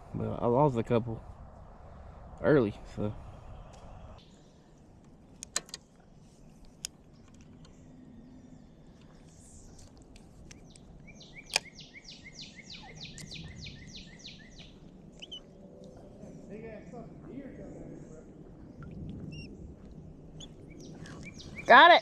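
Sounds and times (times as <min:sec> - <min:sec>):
faint outdoor background noise: 0:00.0 - 0:22.0
sharp clicks: 0:05.0 - 0:05.9, 0:09.8 - 0:11.8, 0:13.1 - 0:13.4.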